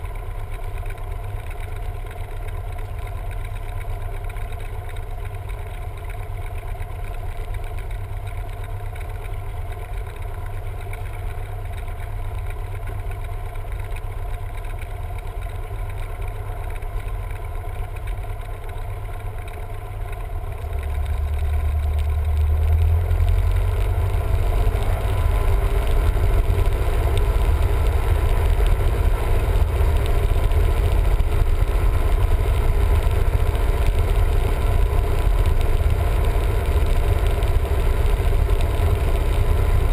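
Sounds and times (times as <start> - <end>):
light aircraft piston engine running: 23.8 - 39.9.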